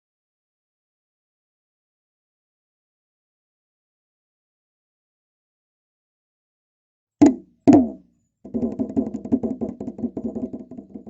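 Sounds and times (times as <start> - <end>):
hand drum beats and roll: 7.2 - 11.0.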